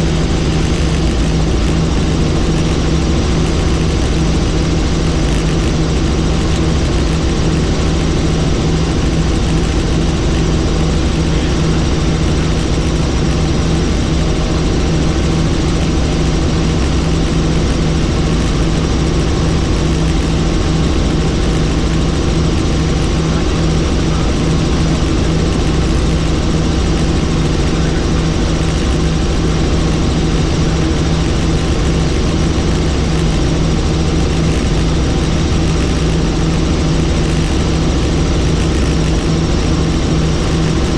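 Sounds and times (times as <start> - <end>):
helicopter engine and rotor: 0.0 - 40.9.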